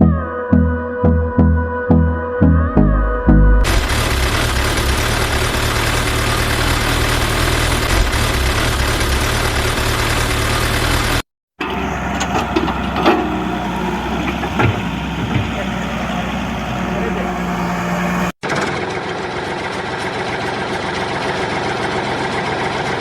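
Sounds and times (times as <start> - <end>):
engine idling: 3.6 - 23.0
heavy vehicle engine running: 3.6 - 23.0
knocks and clanks: 11.6 - 16.2.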